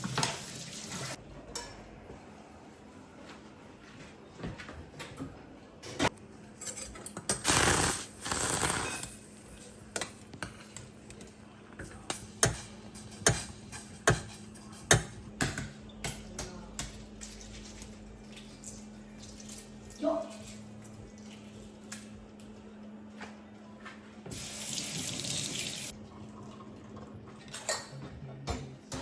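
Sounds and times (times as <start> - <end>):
dishes and utensils clinking: 6.5 - 7.6, 8.5 - 15.3.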